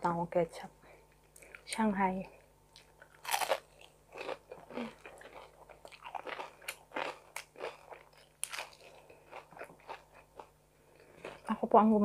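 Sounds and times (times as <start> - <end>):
crunchy chewing: 2.7 - 11.5.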